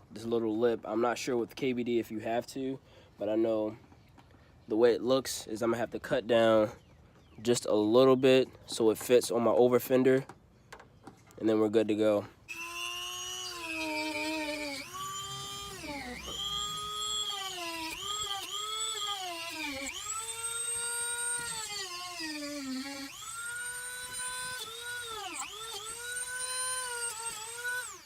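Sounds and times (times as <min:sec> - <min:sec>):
rotary tool whining: 0:12.4 - 0:28.0.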